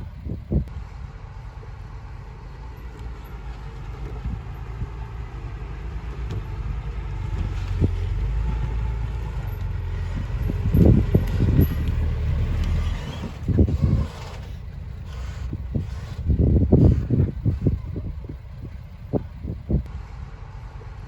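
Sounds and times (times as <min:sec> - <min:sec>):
heavy machine engine rumbling: 0:00.0 - 0:21.0.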